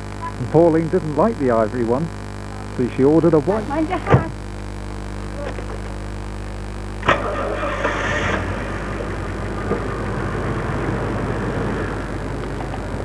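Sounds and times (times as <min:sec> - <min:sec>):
car engine running: 0:07.0 - 0:13.0.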